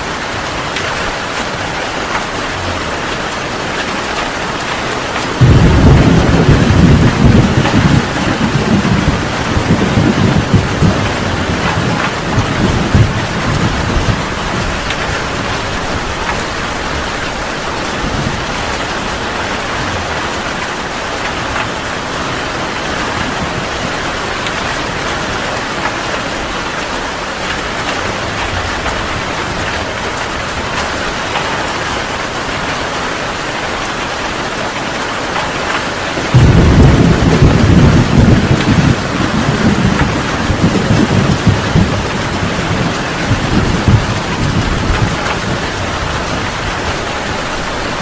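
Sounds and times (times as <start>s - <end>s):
heavy rain falling: 0.0s - 48.0s
thunder rumbling: 3.7s - 25.8s, 36.2s - 48.0s.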